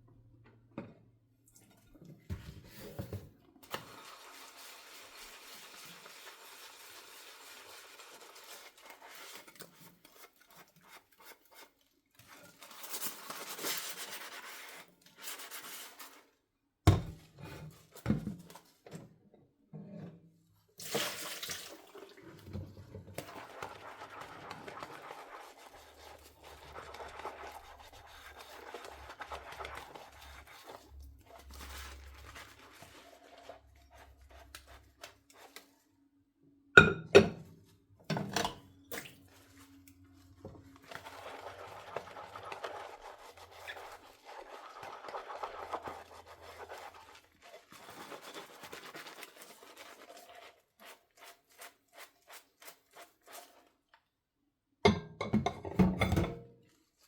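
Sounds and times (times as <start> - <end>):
dishes knocking: 16.9 - 17.2, 54.9 - 56.5
tap running into sink: 16.9 - 17.2.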